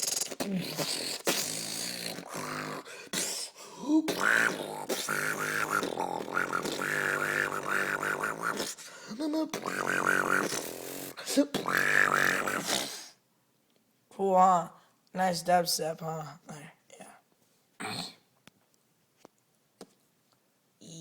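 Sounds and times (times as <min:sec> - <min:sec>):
beatboxing wobble bass: 0:00.0 - 0:02.4, 0:04.1 - 0:08.8, 0:09.5 - 0:12.8
mouth clicks: 0:00.0 - 0:13.1.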